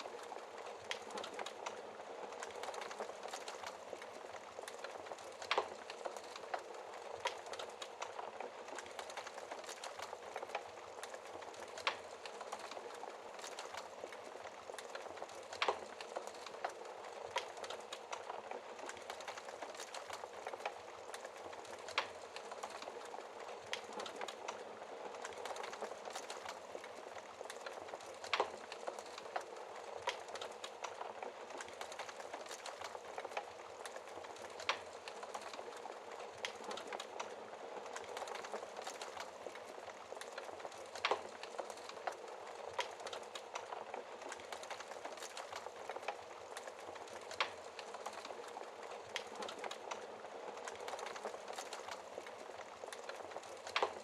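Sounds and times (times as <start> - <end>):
fire crackling: 0.0 - 54.0
fire popping: 0.0 - 54.0.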